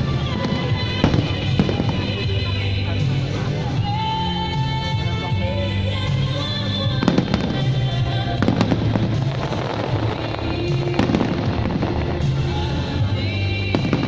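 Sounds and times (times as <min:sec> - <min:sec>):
fireworks bangs: 0:00.0 - 0:02.7, 0:07.0 - 0:14.0
music playing: 0:00.0 - 0:14.0.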